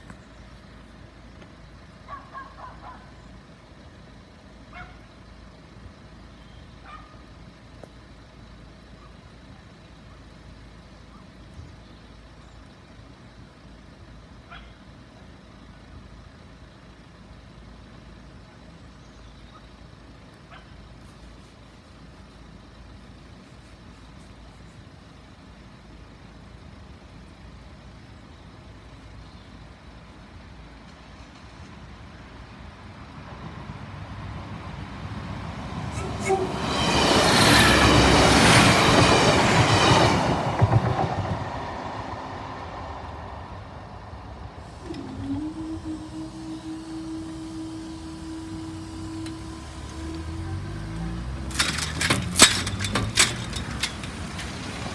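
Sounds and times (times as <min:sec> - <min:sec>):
train approaching: 0:25.2 - 0:54.9
low outdoor rumble: 0:40.4 - 0:54.9.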